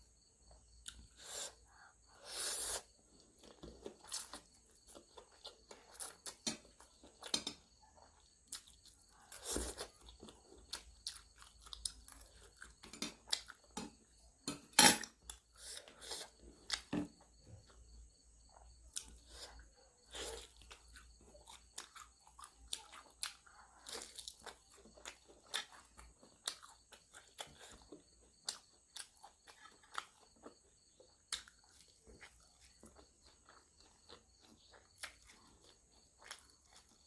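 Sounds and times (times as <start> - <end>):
chewing and mouth smacks: 8.0 - 13.8, 18.4 - 37.0
food crunches and clicks: 8.1 - 13.8, 20.2 - 37.0.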